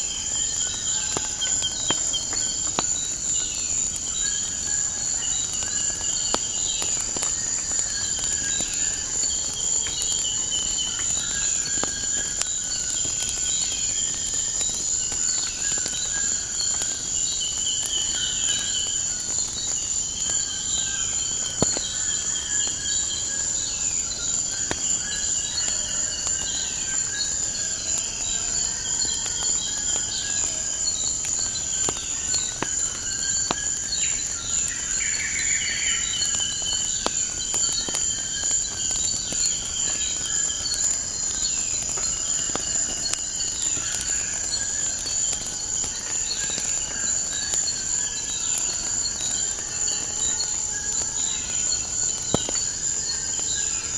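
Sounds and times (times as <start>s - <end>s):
insect trill: 0.1s - 53.9s
wood fire crackling: 41.8s - 48.4s
birds chirping and calling: 44.8s - 46.6s.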